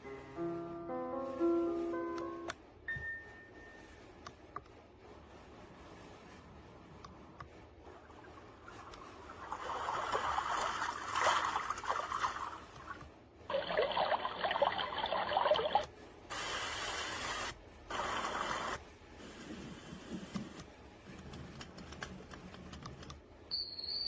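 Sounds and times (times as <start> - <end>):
steady even hiss: 16.3 - 20.6.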